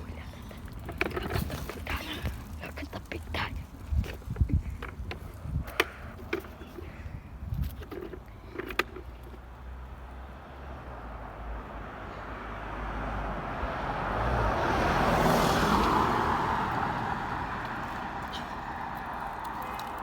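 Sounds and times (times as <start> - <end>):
car passing by: 9.6 - 20.0.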